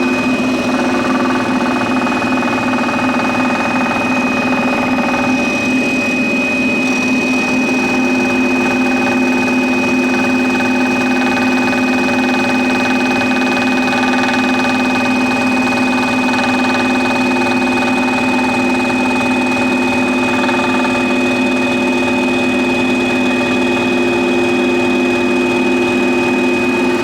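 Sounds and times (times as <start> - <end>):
scroll saw cutting wood: 20.0 - 21.4.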